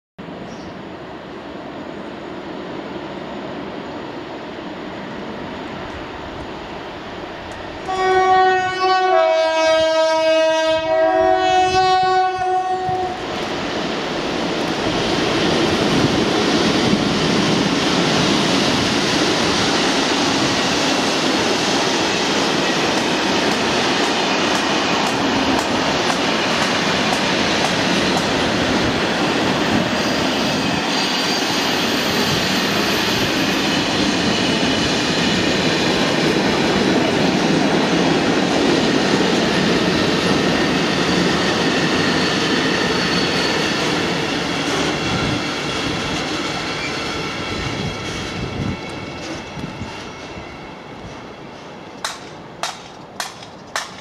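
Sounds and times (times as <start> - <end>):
freight train passing: 0.2 - 54.0
two-tone locomotive horn: 7.8 - 13.2.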